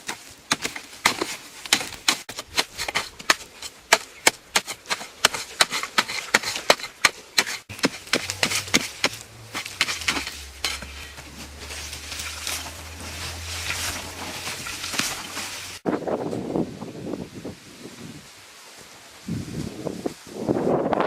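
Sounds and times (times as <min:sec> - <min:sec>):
hand tool striking: 0:00.0 - 0:15.8
scraping and rubbing: 0:00.1 - 0:15.8.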